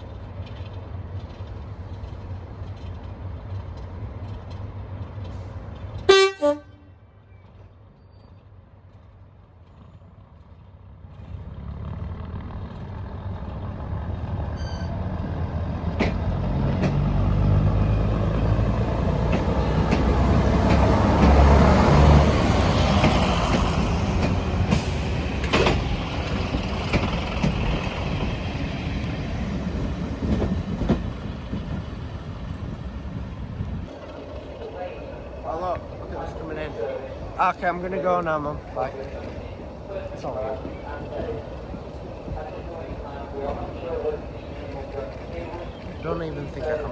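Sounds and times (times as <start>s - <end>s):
diesel locomotive engine passing: 0.0s - 46.9s
locomotive horn blast: 6.1s - 7.1s.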